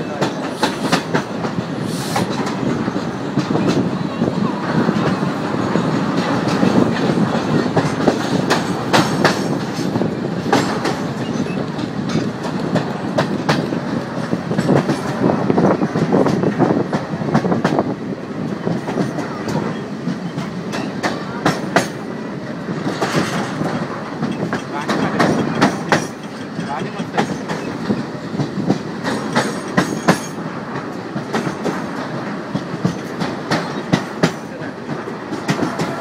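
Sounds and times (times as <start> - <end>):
train rumble: 0.0 - 36.0
wheels clattering over rail joints: 0.0 - 36.0.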